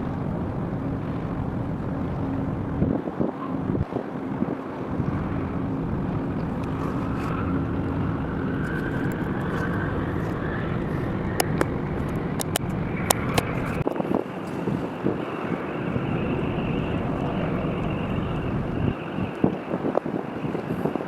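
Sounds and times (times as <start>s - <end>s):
engine rumble: 0.0s - 21.0s
wind on microphone: 0.0s - 21.0s
rising tone: 4.9s - 19.7s
sharp clicks: 11.3s - 14.6s.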